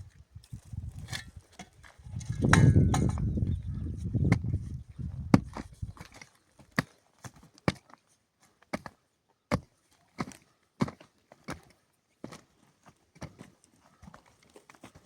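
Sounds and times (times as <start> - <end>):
low rustling and crunching: 0.0 - 8.6.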